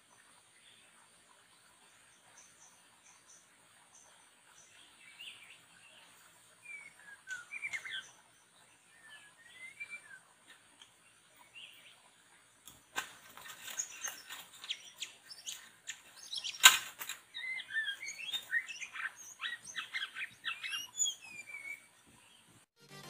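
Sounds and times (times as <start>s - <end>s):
songbirds chirping: 0.0s - 22.8s
sharp clicks: 16.5s - 17.2s.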